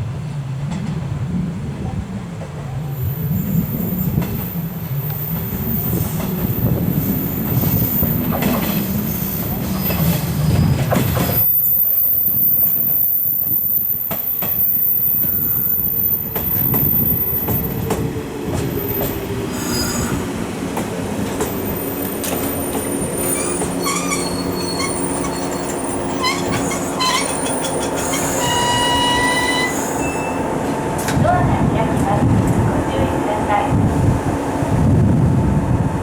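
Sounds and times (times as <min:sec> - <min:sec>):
squealing wheels and brakes: 0:05.0 - 0:10.3, 0:11.1 - 0:17.8, 0:18.8 - 0:20.2, 0:21.5 - 0:30.4.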